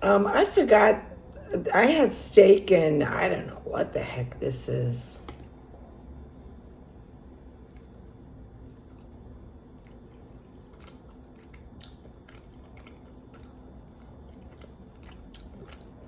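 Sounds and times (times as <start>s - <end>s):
low steady hum: 0.0s - 16.0s
person chewing food: 5.2s - 5.6s, 7.6s - 16.0s
wet mouth clicks and smacks: 9.8s - 16.0s.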